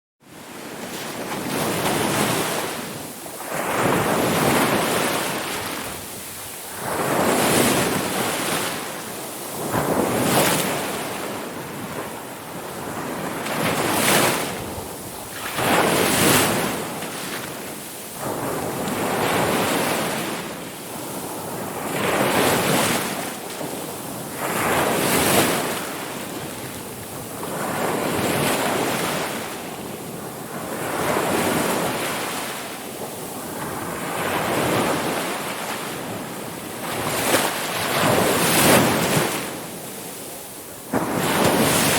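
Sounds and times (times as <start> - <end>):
ocean waves breaking on shore: 0.3 - 41.9.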